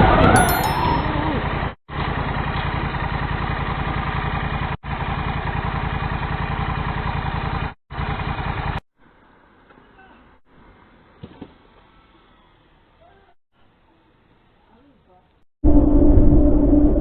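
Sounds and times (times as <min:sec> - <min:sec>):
motor vehicle engine running: 0:01.3 - 0:08.8.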